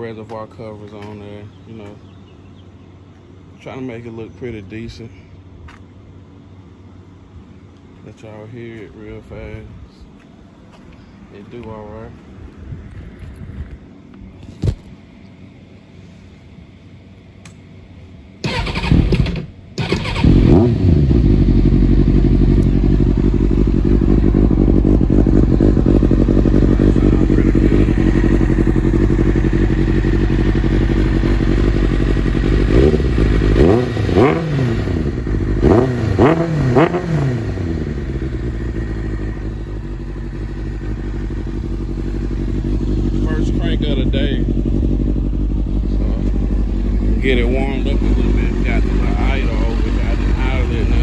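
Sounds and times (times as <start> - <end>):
starter motor cranking: 18.4 - 20.6
motorcycle engine idling: 18.4 - 51.0
motorcycle throttle blips: 18.4 - 51.0.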